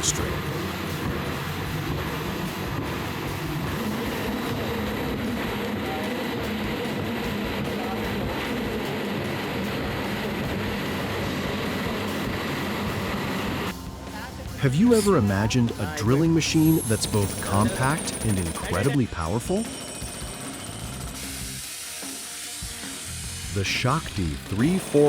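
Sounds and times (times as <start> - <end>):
wood lathe machine running: 15.8 - 25.0.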